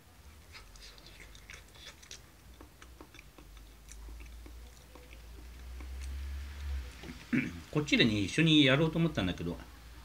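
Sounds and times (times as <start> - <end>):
mouth chewing clicks and smacks: 0.5 - 7.3.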